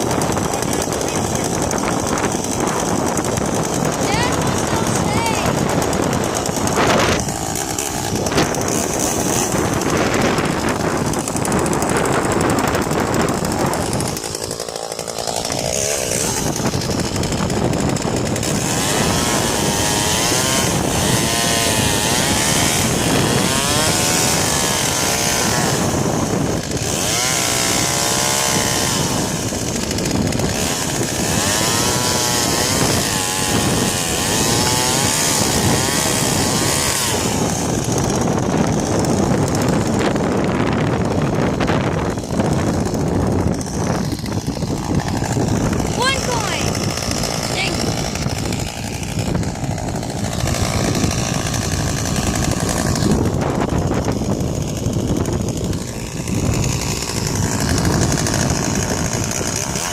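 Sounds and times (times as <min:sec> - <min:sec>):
chainsaw running: 0:00.0 - 0:59.9.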